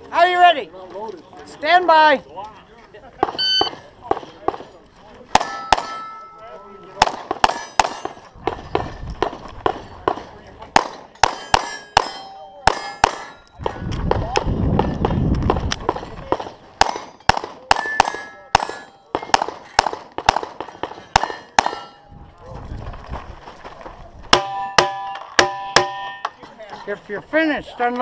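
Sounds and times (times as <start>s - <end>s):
steel plate target ringing: 5.3s - 8.2s, 11.1s - 13.6s, 16.8s - 19.8s, 21.0s - 22.1s, 24.4s - 26.4s
rapid pistol shots: 7.0s - 21.9s.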